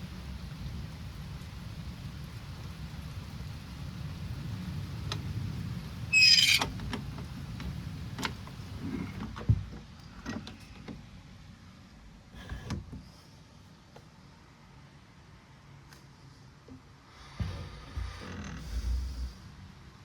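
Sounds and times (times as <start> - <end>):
rain rumble: 0.0 - 16.0, 17.3 - 20.0
loud short squeak: 6.1 - 6.7.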